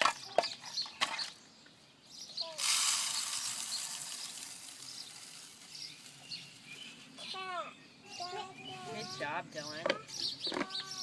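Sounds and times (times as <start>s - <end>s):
birdseed pouring rattle: 2.6s - 6.5s.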